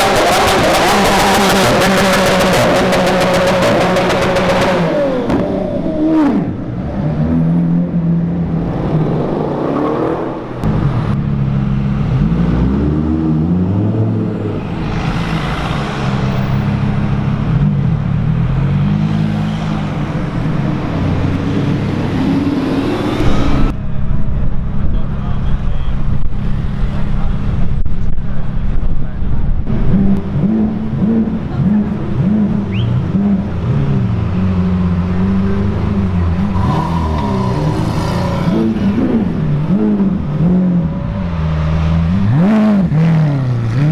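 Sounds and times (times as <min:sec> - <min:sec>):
sports car engines idling and revving: 0:00.0 - 0:43.9
car passing by: 0:14.4 - 0:17.1.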